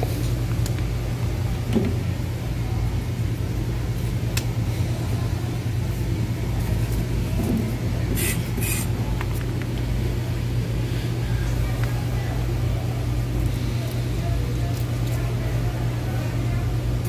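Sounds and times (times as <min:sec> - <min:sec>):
low machine hum: 0:00.0 - 0:17.0
short hissing scrapes: 0:08.2 - 0:08.9.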